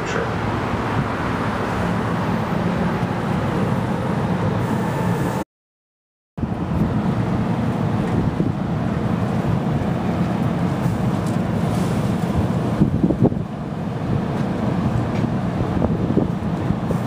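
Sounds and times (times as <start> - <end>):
wind buffeting microphone: 6.4 - 17.0.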